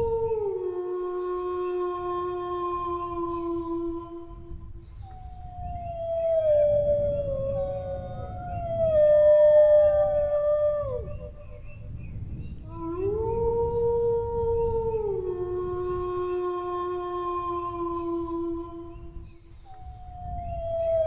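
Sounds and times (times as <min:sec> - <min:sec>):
dogs howling: 0:05.0 - 0:11.8, 0:12.7 - 0:19.1.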